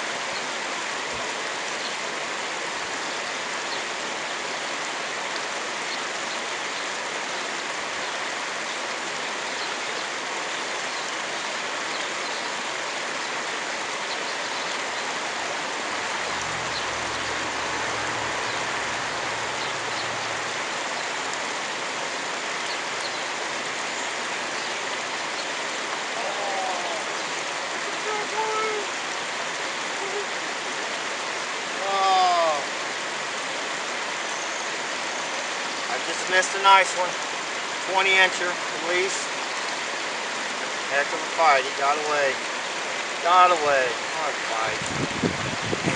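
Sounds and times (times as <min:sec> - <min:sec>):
creek water rushing: 0:00.0 - 0:45.9
brief voice-like sounds: 0:26.2 - 0:27.2.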